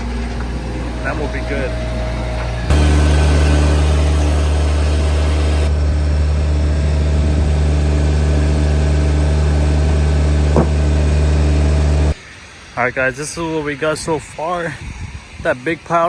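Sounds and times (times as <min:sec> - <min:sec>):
engine idling: 0:00.0 - 0:12.2.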